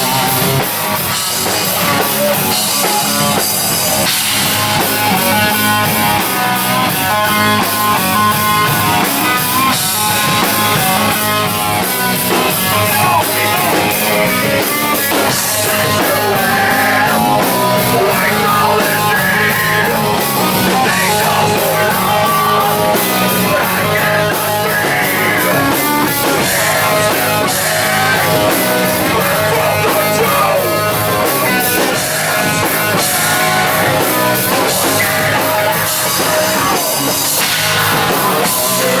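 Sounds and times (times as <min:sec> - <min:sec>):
distorted electric guitar: 0:00.0 - 0:39.0
drum kit: 0:00.0 - 0:39.0.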